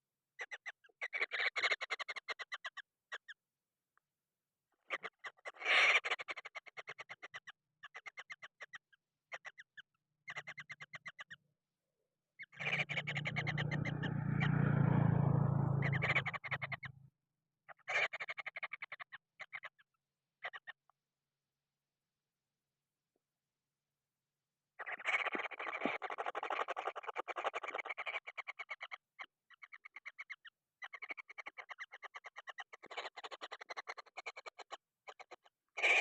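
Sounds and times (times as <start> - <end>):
chicks harsh rasping: 12.6 - 15.0.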